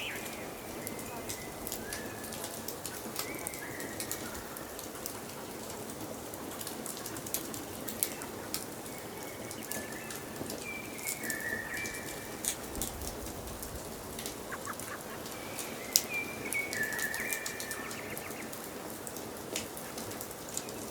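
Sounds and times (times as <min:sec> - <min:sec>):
birds whistling: 0:00.0 - 0:04.8, 0:07.8 - 0:12.5, 0:14.4 - 0:18.6.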